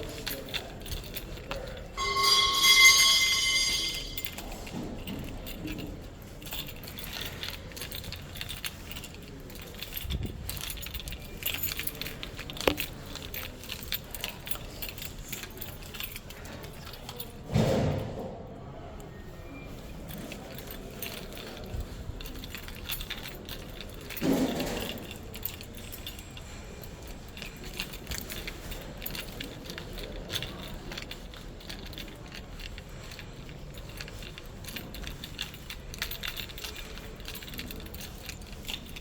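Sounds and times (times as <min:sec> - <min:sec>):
objects clinking and knocking: 0:00.0 - 0:18.4, 0:19.5 - 0:39.0
ringing metallic tone: 0:01.9 - 0:04.8.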